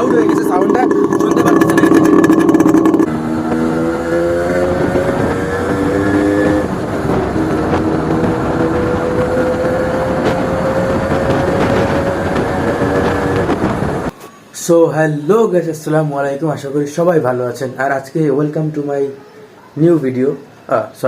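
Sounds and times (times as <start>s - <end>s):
two-stroke motorcycle engine revving: 0.0s - 14.0s.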